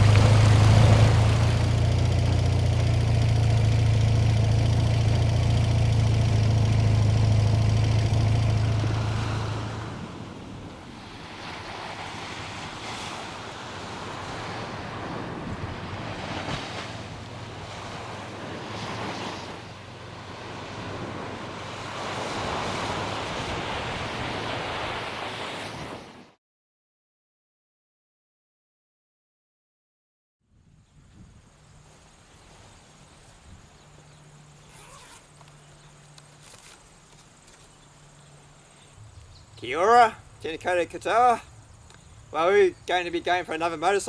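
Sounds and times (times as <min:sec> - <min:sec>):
engine idling: 0:00.0 - 0:10.2
steady outdoor rush: 0:00.0 - 0:25.3, 0:31.4 - 0:44.0.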